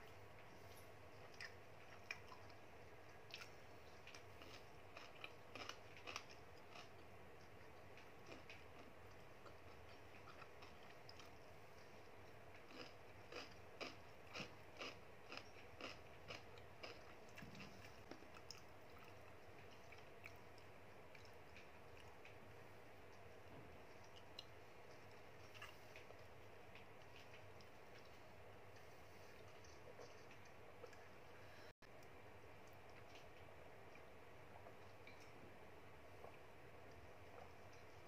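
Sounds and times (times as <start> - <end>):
crunchy wet chewing: 0.5 - 22.5, 23.1 - 31.1.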